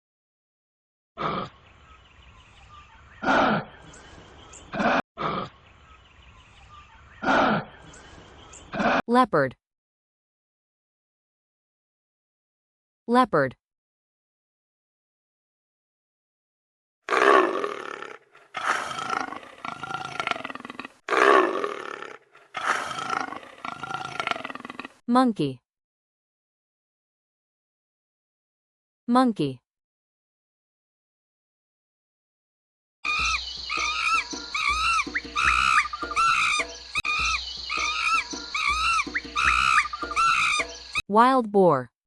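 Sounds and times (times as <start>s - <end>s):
leopard roaring: 17.1s - 25.0s
monkey calling: 17.1s - 25.0s, 33.0s - 41.0s.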